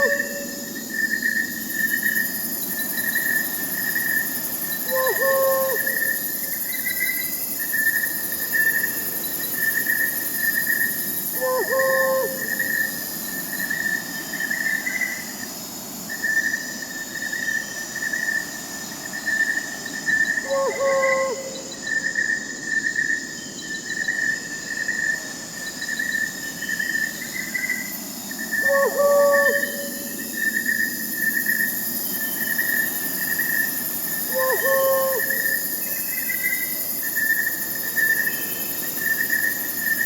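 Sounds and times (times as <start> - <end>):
owl hooting: 0.0 - 0.8, 4.8 - 6.2, 11.4 - 13.0, 20.4 - 21.7, 28.6 - 30.3, 34.2 - 35.6
crickets trilling: 0.0 - 40.0.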